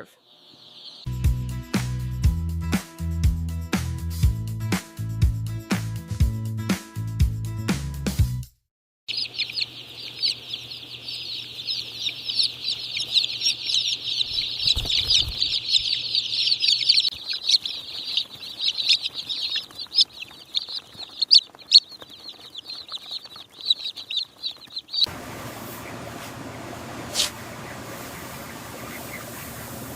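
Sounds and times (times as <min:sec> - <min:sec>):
chicks peeping: 0:00.2 - 0:01.1, 0:09.1 - 0:29.9.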